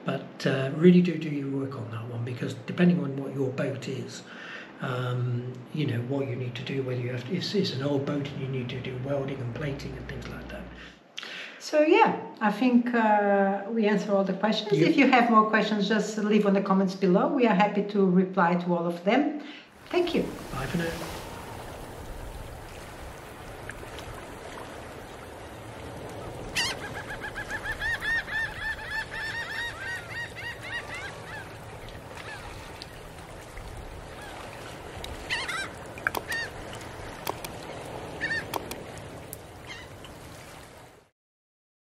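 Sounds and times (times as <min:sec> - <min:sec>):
rapid short bird calls: 0:26.5 - 0:32.6, 0:35.2 - 0:36.7, 0:38.1 - 0:38.7
sharp clicks: 0:36.0 - 0:36.4, 0:37.2 - 0:37.6, 0:38.4 - 0:39.4.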